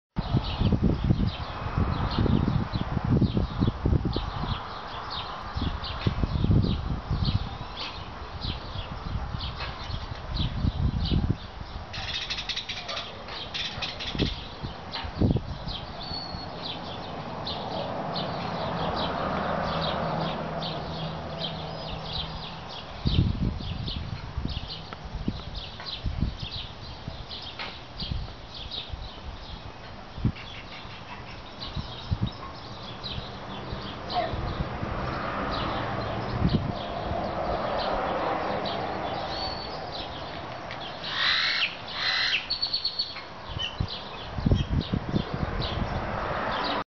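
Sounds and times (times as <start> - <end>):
small birds chirping: 0.2 - 46.8
harsh caw-like bird calls: 41.0 - 43.0.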